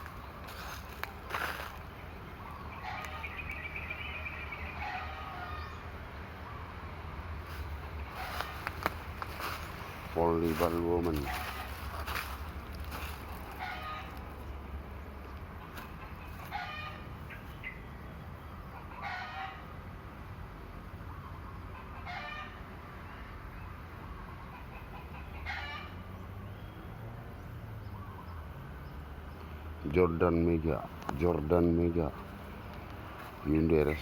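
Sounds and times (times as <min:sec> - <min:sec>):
chickens calling: 0:00.0 - 0:06.8, 0:07.5 - 0:14.6, 0:15.5 - 0:17.8, 0:18.6 - 0:19.7, 0:30.8 - 0:34.0.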